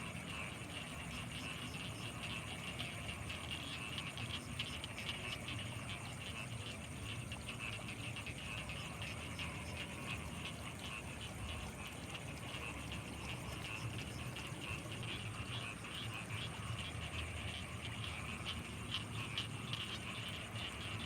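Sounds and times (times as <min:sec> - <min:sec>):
frogs calling: 0:00.0 - 0:21.0.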